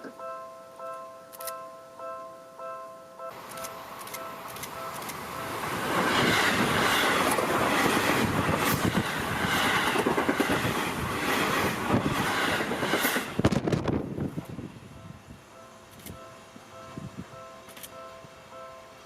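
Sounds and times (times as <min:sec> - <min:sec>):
train wheels clattering over rail joints: 0:03.5 - 0:13.9.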